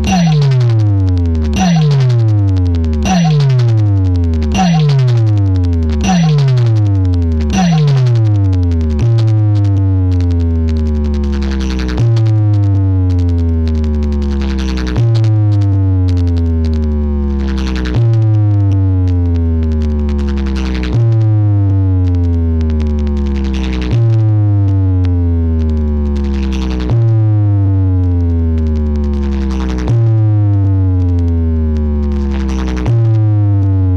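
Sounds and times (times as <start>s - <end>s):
electronic dance music: 0.0s - 0.9s, 1.6s - 2.4s, 3.0s - 5.4s, 6.0s - 6.9s, 7.5s - 8.4s.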